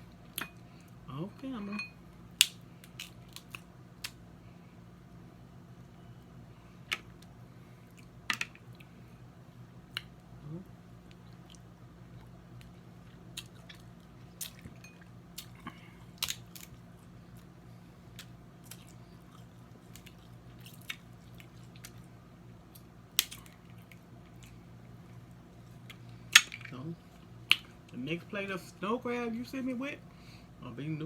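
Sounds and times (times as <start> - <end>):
low steady hum: 0.0 - 31.0
crab shell cracking: 2.3 - 4.2, 22.7 - 24.6
chewing: 11.1 - 17.5, 18.1 - 22.1, 22.7 - 26.0.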